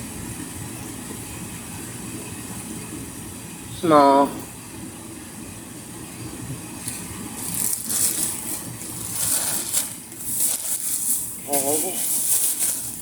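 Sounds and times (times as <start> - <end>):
plastic packaging crinkling: 6.9 - 13.0.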